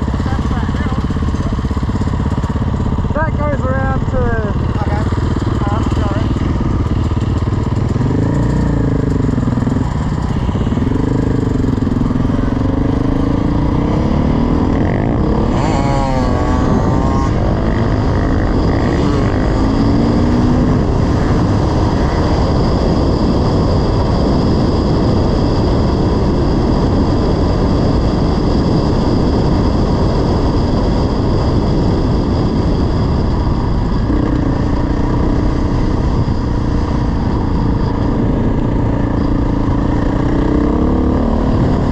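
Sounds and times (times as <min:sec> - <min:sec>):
dirt bike engine revving: 0:00.0 - 0:24.4, 0:34.0 - 0:41.9
steady rushing noise: 0:00.0 - 0:41.9.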